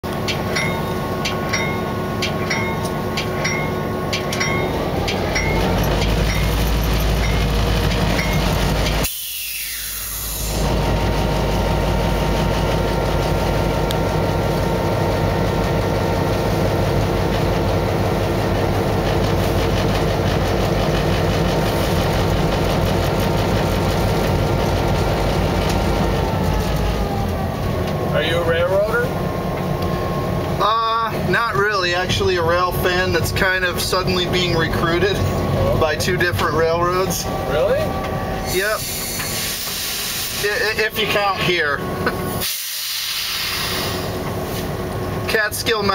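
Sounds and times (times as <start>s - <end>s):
diesel locomotive engine running: 0.0s - 45.9s
ringing metallic strikes: 0.3s - 8.6s.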